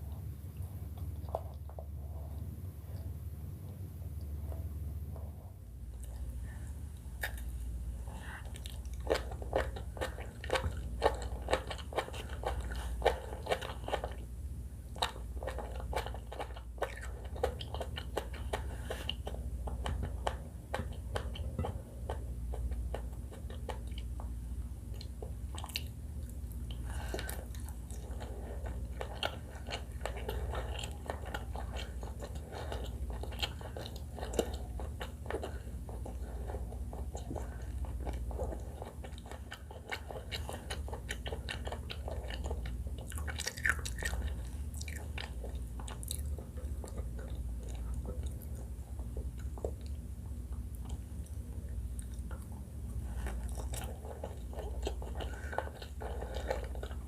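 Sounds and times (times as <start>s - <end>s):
low hum: 0.0s - 15.1s
chewing with crisp crunches: 0.0s - 57.0s.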